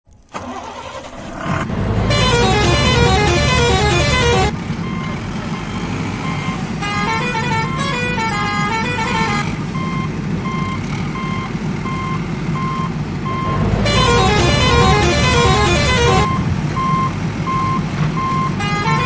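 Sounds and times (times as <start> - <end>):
low engine rumble: 0.4 - 19.0
reversing alarm beeping: 2.1 - 6.6, 9.8 - 19.0.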